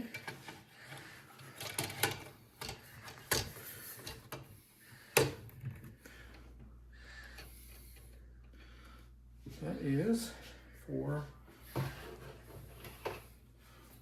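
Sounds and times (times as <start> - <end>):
hard parts knocking and clicking: 0.1 - 4.5.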